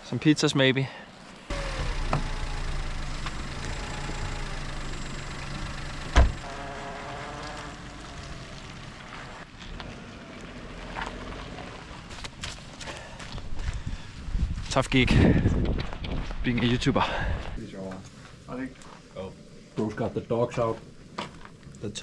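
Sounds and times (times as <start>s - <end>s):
car engine and road hum: 1.3s - 12.7s.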